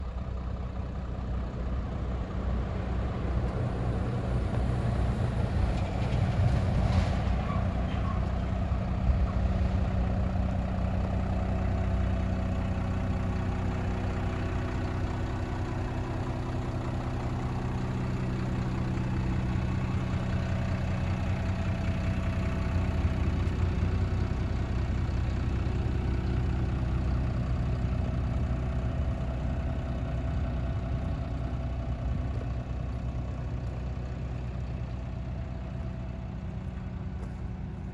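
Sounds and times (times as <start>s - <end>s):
truck diesel engine idling: 0.0s - 37.9s.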